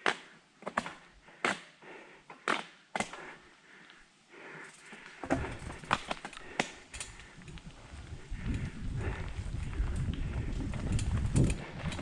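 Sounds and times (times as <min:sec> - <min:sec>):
bike knocking over rock: 0:05.2 - 0:06.8.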